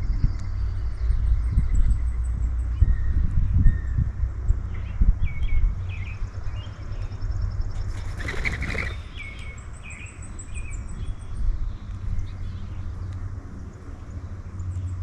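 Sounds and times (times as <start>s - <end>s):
small birds chirping: 4.7s - 15.0s
wings fluttering: 7.8s - 9.2s.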